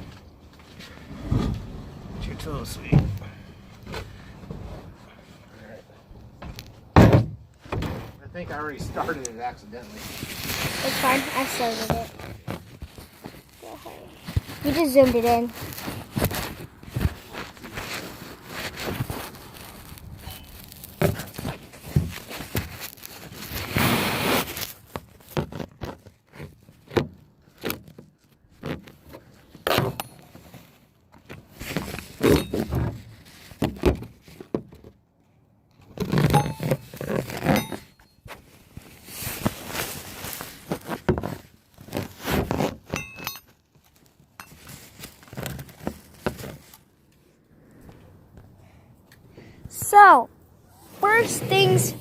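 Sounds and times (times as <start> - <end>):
rustling handling noise: 8.5 - 48.5, 50.9 - 52.0
objects thunking and clinking: 36.1 - 38.3, 42.9 - 43.6.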